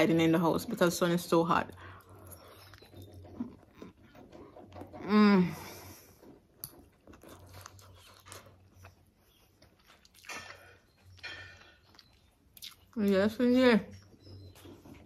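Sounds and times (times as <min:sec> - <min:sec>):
person chewing food: 0:01.7 - 0:13.1.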